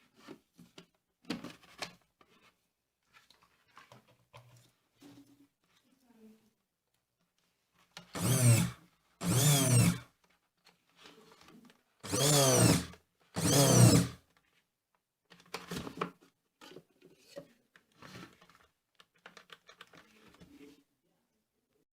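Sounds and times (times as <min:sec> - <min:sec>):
chopper motor whirring: 0:08.2 - 0:10.0, 0:12.1 - 0:14.2.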